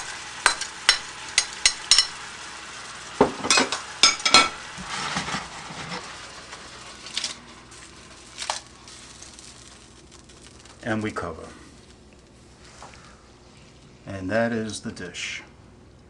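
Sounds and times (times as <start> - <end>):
sauce sizzling in a skillet: 0.0 - 13.7
utensil scraping a pan: 4.2 - 7.5.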